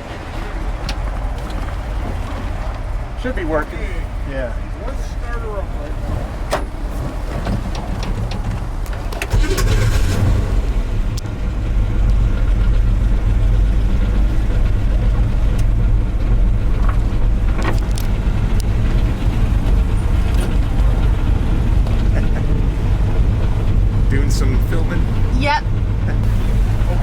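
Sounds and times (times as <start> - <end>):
van engine idling: 7.8 - 27.0.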